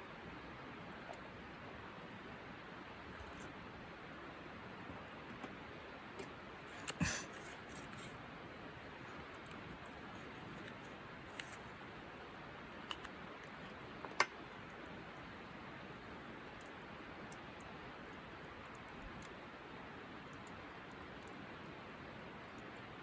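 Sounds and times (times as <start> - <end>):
campfire crackling and popping: 16.0 - 23.0.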